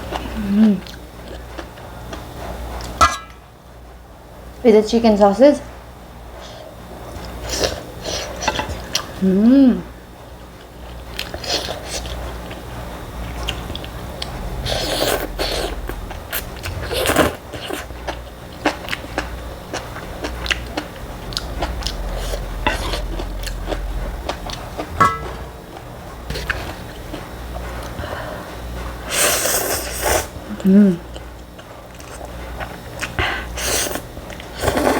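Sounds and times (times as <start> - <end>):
chewing and biting: 13.3 - 25.0.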